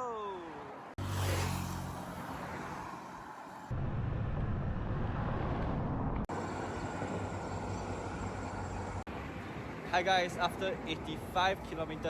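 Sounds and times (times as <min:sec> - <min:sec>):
road traffic rumble: 0:00.3 - 0:03.8, 0:06.2 - 0:12.0
wind noise: 0:03.7 - 0:06.3.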